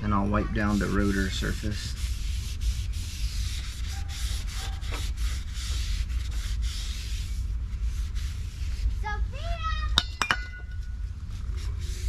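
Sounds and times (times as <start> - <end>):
rag rubbing a brake rotor: 0.0 - 9.3.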